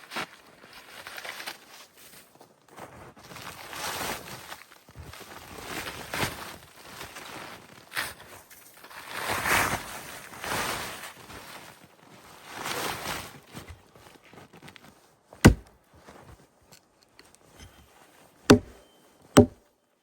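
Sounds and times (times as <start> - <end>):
sharp knock: 15.5 - 15.7, 18.5 - 18.7.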